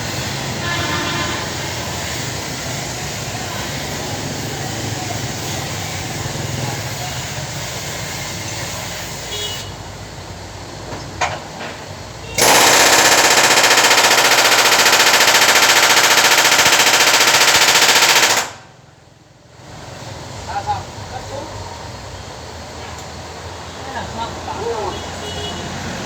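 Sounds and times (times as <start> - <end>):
workshop noise: 0.0 - 18.9
pneumatic tool hammering metal: 11.1 - 18.6.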